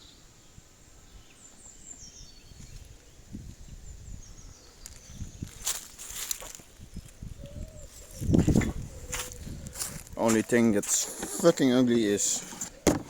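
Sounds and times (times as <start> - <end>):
scuffs or rustles: 4.9 - 6.8, 7.9 - 12.8.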